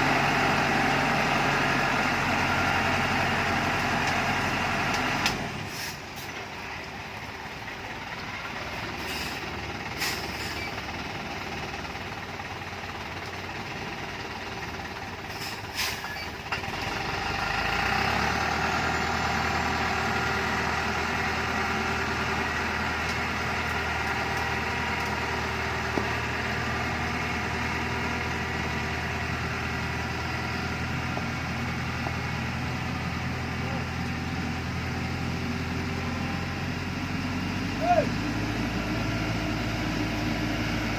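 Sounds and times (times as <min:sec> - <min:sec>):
diesel truck engine running: 0:00.0 - 0:40.9
short sharp hisses or clicks: 0:15.3 - 0:16.2.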